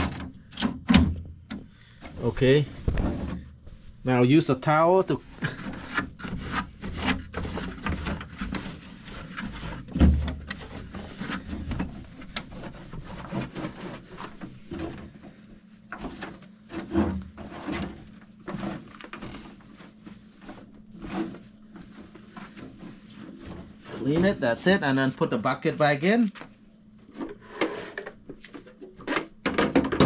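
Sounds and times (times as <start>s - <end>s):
towel rubbing plastic: 2.1s - 25.0s.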